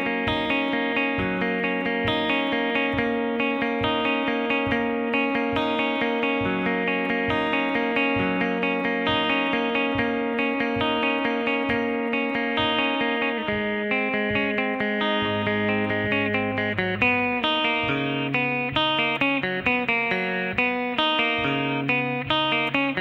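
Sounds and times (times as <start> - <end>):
electric guitar picking: 0.0 - 23.0.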